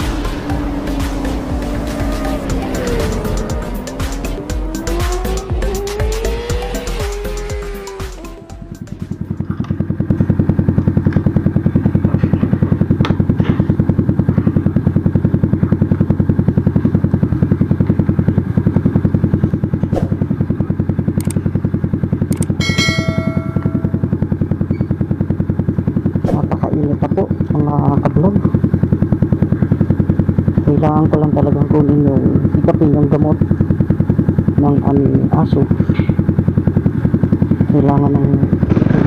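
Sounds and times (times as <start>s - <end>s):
motorcycle engine idling: 0.0s - 39.0s
bright chime sound effect: 22.6s - 24.0s.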